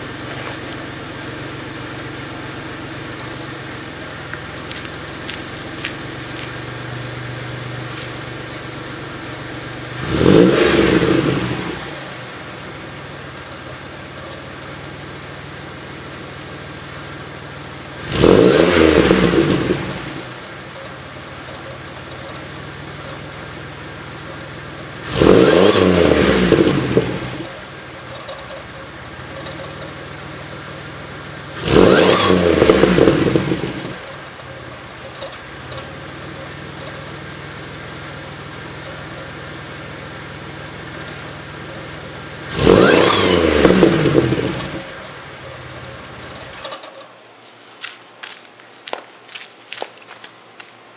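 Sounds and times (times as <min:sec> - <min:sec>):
engine throttle blips: 0:00.0 - 0:47.4
engine exhaust idling: 0:00.0 - 0:50.9.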